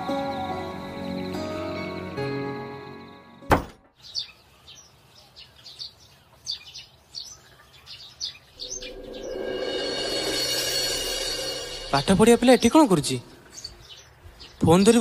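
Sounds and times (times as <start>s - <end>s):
small birds chirping: 3.9s - 11.4s, 12.1s - 15.0s
sharp hit: 8.6s - 13.4s.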